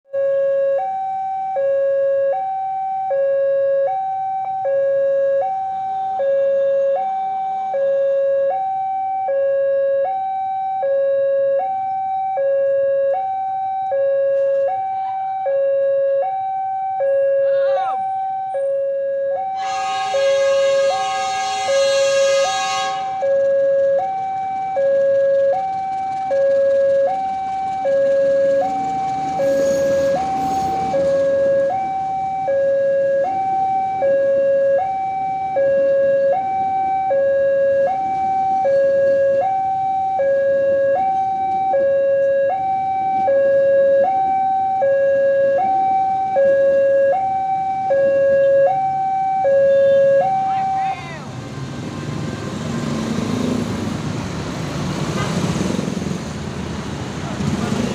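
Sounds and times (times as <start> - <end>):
level crossing two-tone alarm: 0.1 - 51.2
loud horn: 19.5 - 23.5, 55.0 - 55.9.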